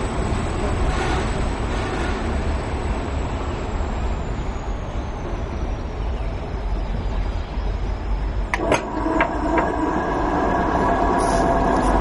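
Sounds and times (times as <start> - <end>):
train rumble and rail noise: 0.0 - 12.0
thin high whine: 8.4 - 12.0.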